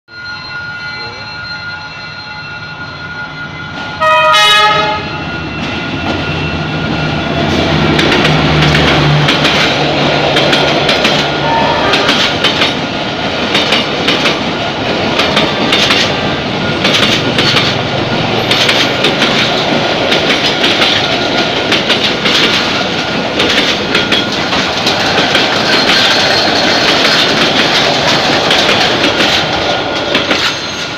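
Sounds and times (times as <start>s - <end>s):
locomotive engine rumbling: 3.7s - 30.9s
train horn blast: 4.0s - 5.3s, 11.4s - 12.3s
wheels clickety-clack on rails: 5.5s - 30.9s.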